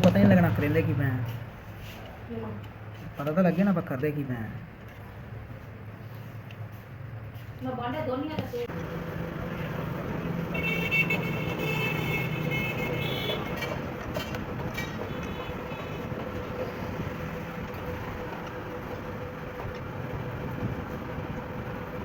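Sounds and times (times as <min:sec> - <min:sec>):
street traffic noise: 0:00.0 - 0:22.0
vehicle horn: 0:10.4 - 0:13.9, 0:14.8 - 0:16.2.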